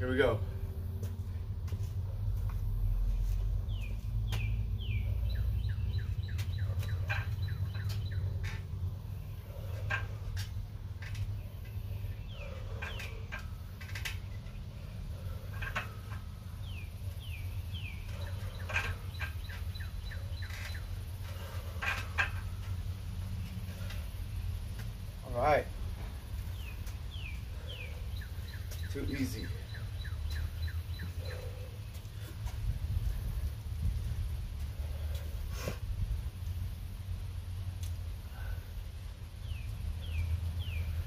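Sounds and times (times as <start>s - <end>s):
steady low rumble: 0.0s - 41.0s
bird singing falling chirps: 26.5s - 31.7s.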